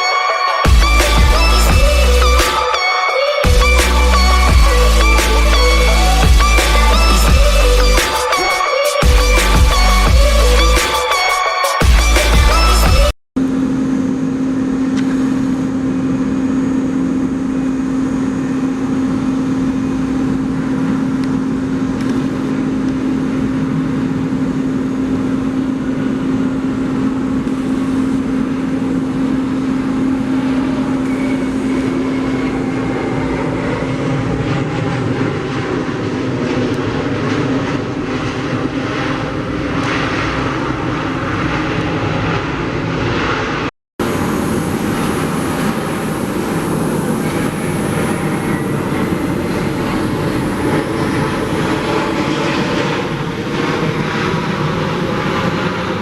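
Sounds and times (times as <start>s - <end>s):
jet engine rushing noise: 0.0s - 56.0s
low engine hum: 0.7s - 2.4s.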